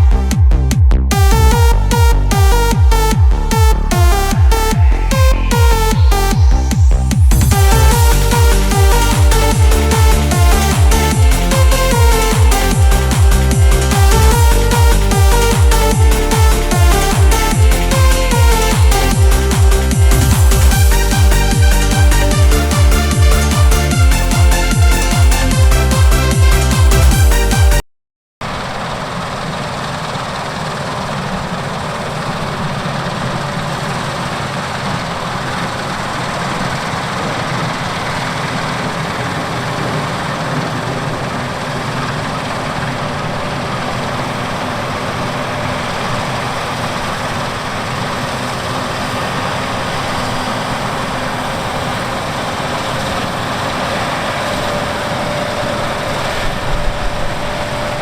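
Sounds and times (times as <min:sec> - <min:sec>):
farm harvest machinery running: 0:28.4 - 0:58.0.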